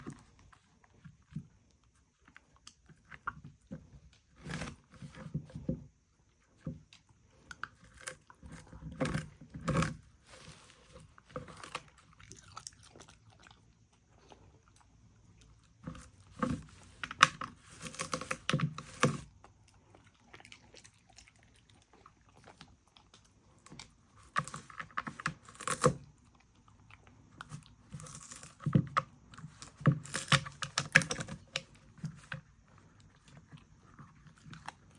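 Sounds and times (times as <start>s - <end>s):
dog crunching food: 7.3s - 34.9s.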